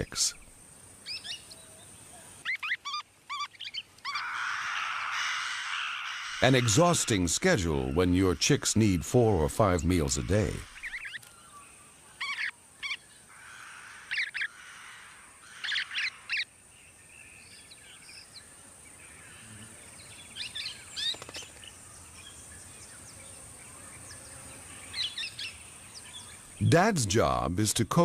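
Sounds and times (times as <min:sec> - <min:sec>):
steady high-pitched hiss: 0:00.0 - 0:28.0
parrots chirping: 0:02.4 - 0:11.2, 0:12.2 - 0:13.0, 0:13.6 - 0:16.5.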